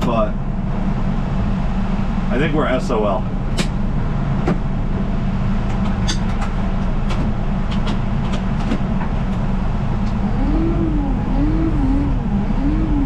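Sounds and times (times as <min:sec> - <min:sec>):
vehicle engine running: 0:00.0 - 0:13.0
wavering rising and falling tone: 0:10.1 - 0:13.0.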